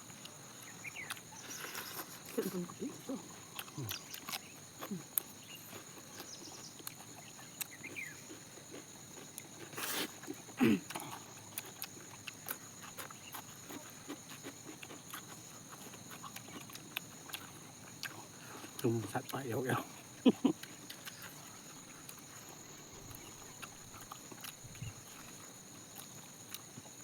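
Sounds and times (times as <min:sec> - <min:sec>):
wet chewing and lip smacking: 0:00.0 - 0:27.0
low grunt: 0:10.6 - 0:11.1.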